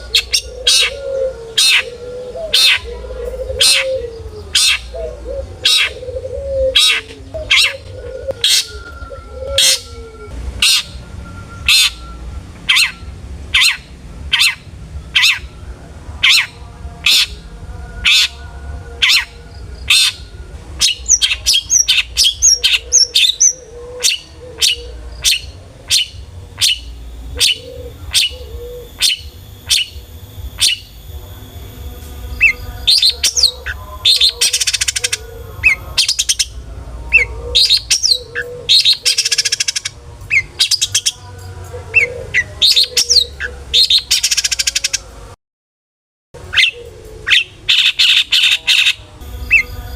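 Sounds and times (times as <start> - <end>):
shrike singing harsh notes: 0.0 - 45.3, 46.4 - 49.9
high bird chirps: 19.0 - 31.4, 32.2 - 36.6, 46.6 - 49.9.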